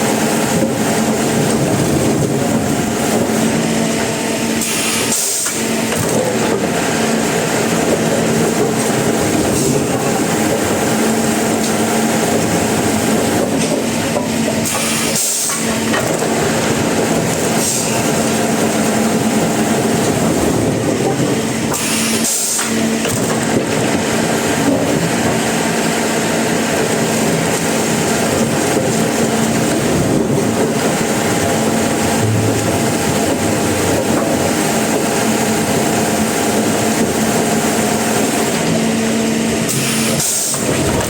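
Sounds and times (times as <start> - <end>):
sawmill machinery running: 0.0 - 41.0.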